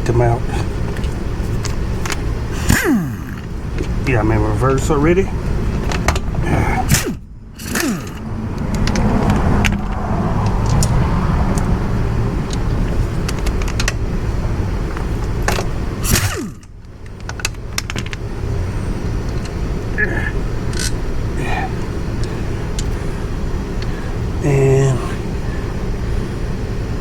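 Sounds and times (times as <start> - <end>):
pneumatic air tool running: 6.9 - 8.2, 16.0 - 16.7.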